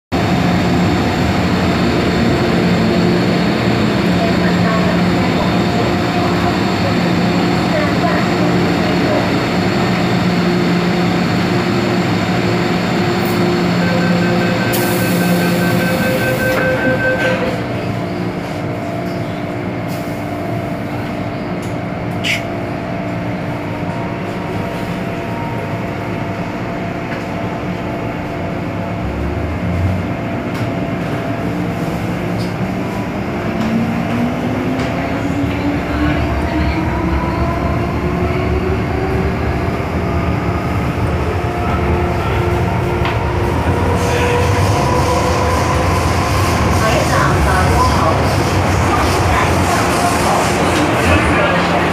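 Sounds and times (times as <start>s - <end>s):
train interior hum: 0.2s - 51.9s
door closing beeps: 14.5s - 17.6s.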